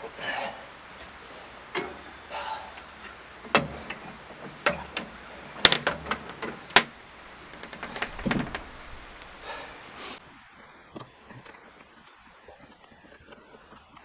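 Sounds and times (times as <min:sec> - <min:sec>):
rattling soft knocks: 0:01.7 - 0:02.2, 0:02.8 - 0:09.8
sharp clunks and knocks: 0:01.8 - 0:02.1, 0:03.4 - 0:09.7.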